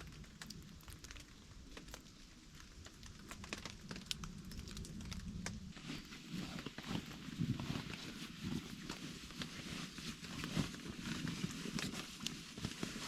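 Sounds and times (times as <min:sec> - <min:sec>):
faint low rumble: 0:00.0 - 0:13.0
small crackles and clicks: 0:00.0 - 0:13.0.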